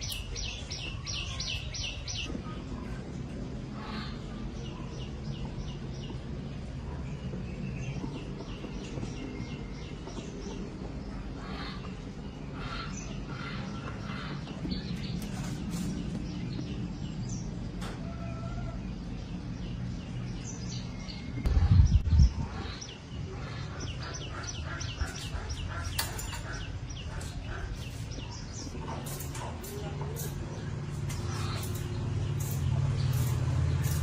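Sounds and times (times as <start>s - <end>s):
small birds chirping: 0.0s - 34.0s
steady low hum: 0.0s - 34.0s
loud low rumble: 21.2s - 25.9s.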